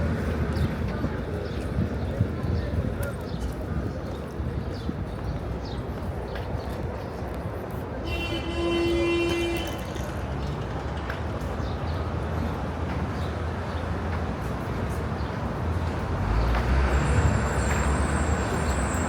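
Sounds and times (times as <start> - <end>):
passing motor vehicles rumbling: 8.2 - 19.0.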